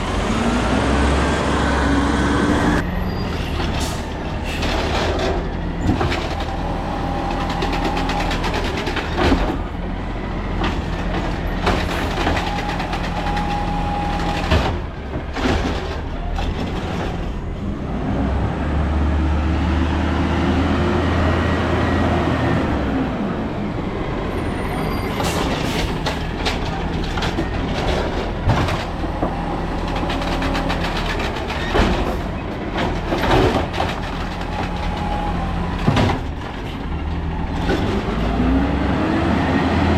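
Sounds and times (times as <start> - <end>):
diesel engine running and revving: 0.0 - 39.9
sharp bangs and knocks: 10.5 - 17.4, 25.2 - 38.2.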